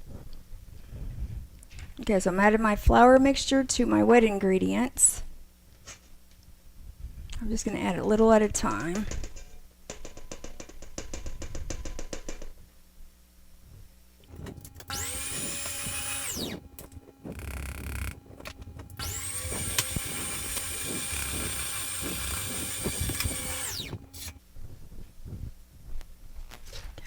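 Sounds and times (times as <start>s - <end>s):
electric mixer whining: 14.3s - 24.4s.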